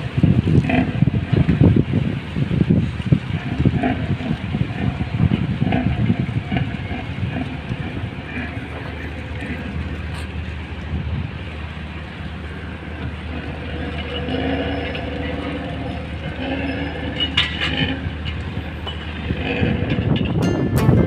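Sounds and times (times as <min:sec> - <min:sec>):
ship rumbling down slipway rails: 0:00.0 - 0:21.0
metallic tones: 0:12.5 - 0:21.0
faint clatter: 0:13.0 - 0:20.6.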